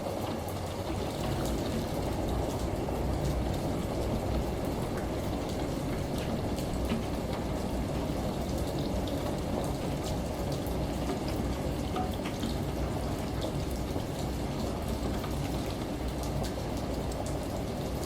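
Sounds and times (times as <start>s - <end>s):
rain: 0.0s - 18.0s
faint drip ticks: 10.6s - 12.6s.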